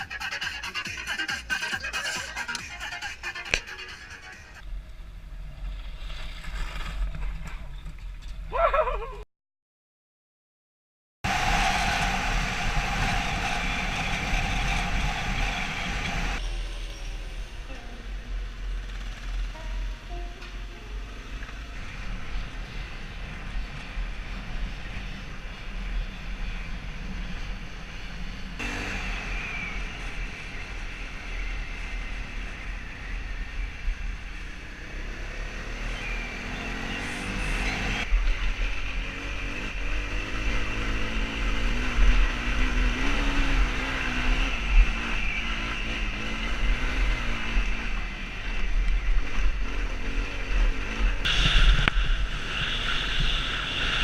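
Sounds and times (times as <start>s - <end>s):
low wind rumble: 11.2s - 35.6s, 36.2s - 54.0s.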